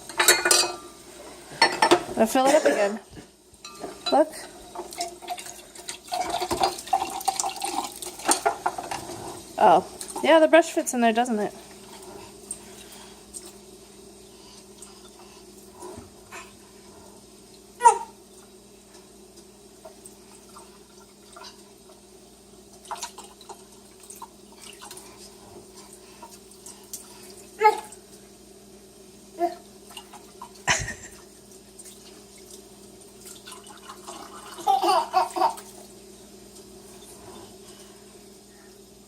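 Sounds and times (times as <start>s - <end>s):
water splashing in sink: 4.0s - 13.6s, 22.7s - 28.2s, 29.4s - 36.0s.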